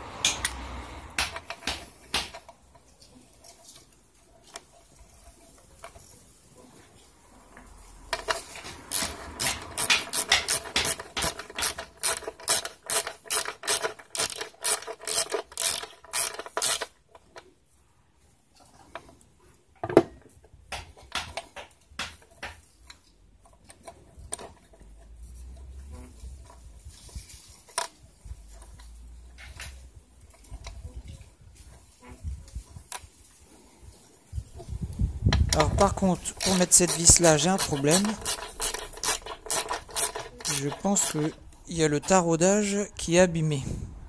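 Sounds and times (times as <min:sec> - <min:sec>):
tools and metal parts knocking: 0:00.2 - 0:02.8, 0:08.1 - 0:16.9, 0:35.4 - 0:41.5
ratchet tool clicking: 0:08.1 - 0:17.0, 0:35.6 - 0:41.6.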